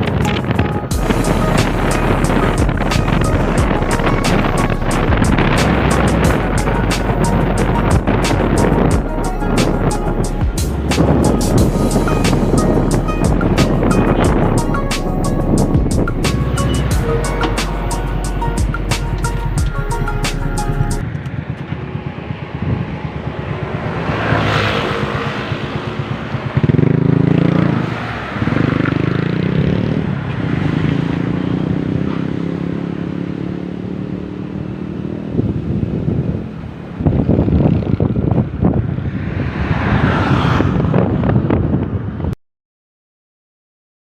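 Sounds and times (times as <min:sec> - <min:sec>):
motorcycle engine running: 0:00.0 - 0:20.1, 0:20.7 - 0:27.8
wind on microphone: 0:00.0 - 0:42.4.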